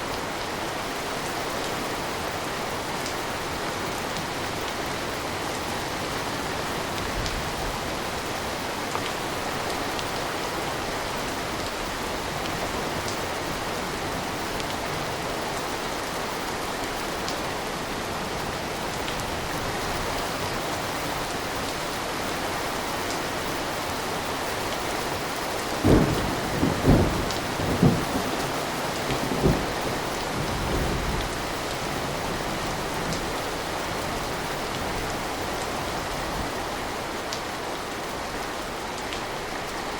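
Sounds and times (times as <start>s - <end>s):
steady rain: 0.0s - 39.9s
thunder cracks and rumbles: 25.8s - 31.5s.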